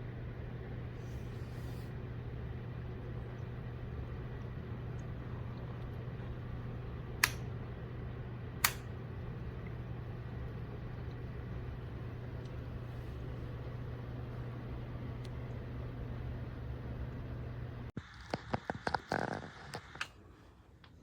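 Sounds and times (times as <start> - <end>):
small appliance humming: 0.0 - 21.0
sharp clicks: 7.2 - 7.4, 8.6 - 8.9.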